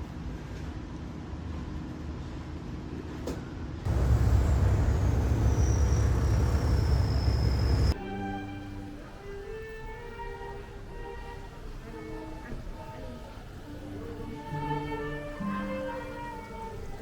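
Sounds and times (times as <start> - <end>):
high whine sliding down: 3.9 - 8.0
engine rumbling: 3.9 - 10.0.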